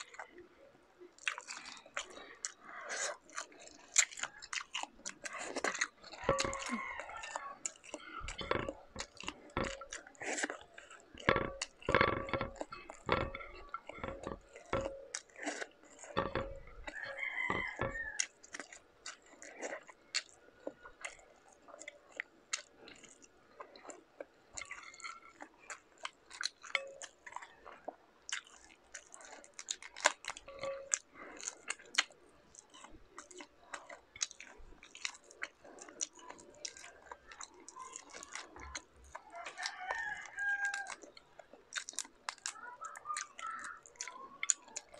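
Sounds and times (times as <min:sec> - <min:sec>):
person chewing food: 0:00.0 - 0:44.9
shrimp shells cracking: 0:01.2 - 0:23.2, 0:23.8 - 0:44.9.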